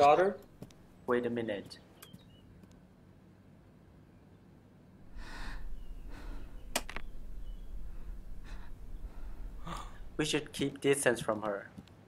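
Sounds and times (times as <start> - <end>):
breathy swells: 5.0 - 10.2
low rumble: 5.0 - 10.6.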